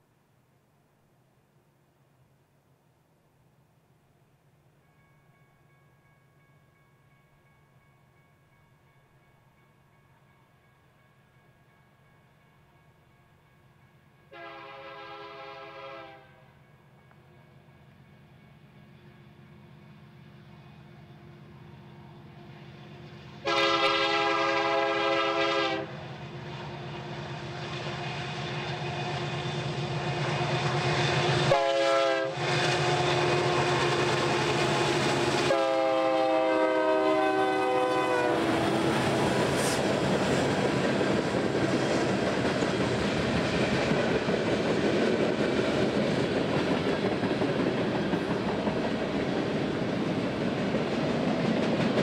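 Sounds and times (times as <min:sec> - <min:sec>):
diesel locomotive engines rumbling: 0:14.0 - 0:52.0
train air horn: 0:14.3 - 0:16.6, 0:23.4 - 0:26.0, 0:30.6 - 0:39.9
freight cars clickety-clack: 0:38.5 - 0:52.0.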